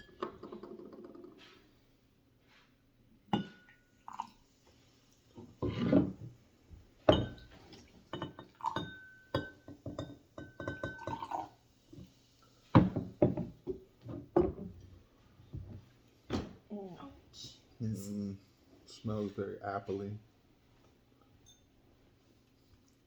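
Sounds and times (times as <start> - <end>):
glass clinking and tapping: 0.0 - 1.5, 3.3 - 4.3, 7.0 - 11.5, 12.8 - 14.7, 21.4 - 21.7.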